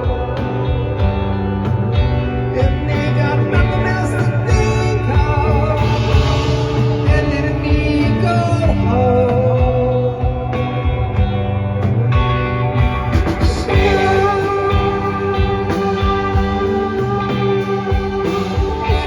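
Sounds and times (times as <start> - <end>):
live rock band playing: 0.0 - 19.0
person singing: 2.5 - 10.9, 13.4 - 19.0.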